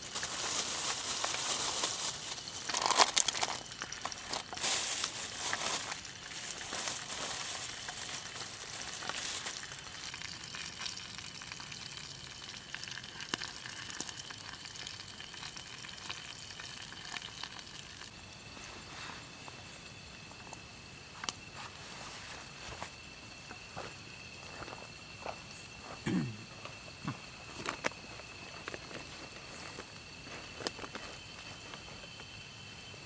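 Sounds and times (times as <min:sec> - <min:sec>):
eel frying in hot oil: 0:00.0 - 0:18.2.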